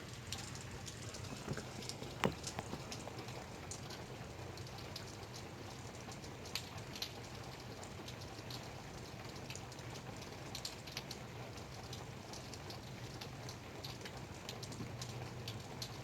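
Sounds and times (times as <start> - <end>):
light rain hiss: 0.0 - 16.0
raindrops tapping: 0.0 - 16.0.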